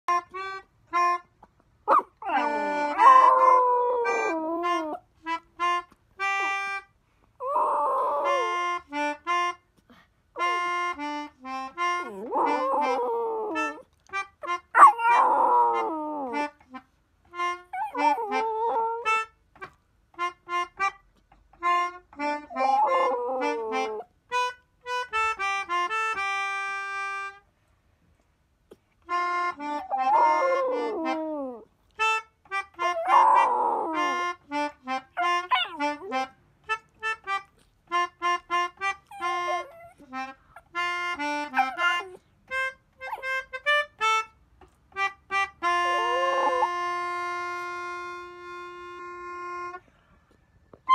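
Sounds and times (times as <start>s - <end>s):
melodica playing: 0.1s - 6.9s, 8.3s - 9.7s, 10.4s - 15.2s, 15.8s - 27.5s, 29.1s - 33.2s, 33.9s - 49.8s
dog howling: 1.9s - 5.0s, 7.4s - 8.6s, 12.0s - 13.8s, 14.8s - 16.4s, 17.8s - 19.1s, 22.5s - 24.0s, 29.6s - 31.6s, 32.8s - 34.3s, 35.2s - 36.0s, 39.1s - 40.1s, 41.4s - 42.2s, 45.7s - 46.8s.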